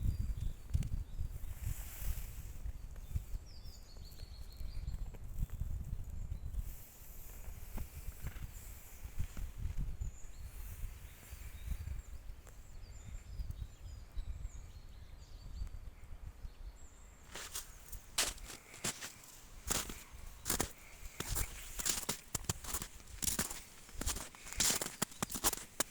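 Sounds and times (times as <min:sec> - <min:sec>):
small birds chirping: 0:00.0 - 0:25.9
wind rumble on microphone: 0:00.0 - 0:25.9
sharp crunching sounds: 0:17.3 - 0:25.9.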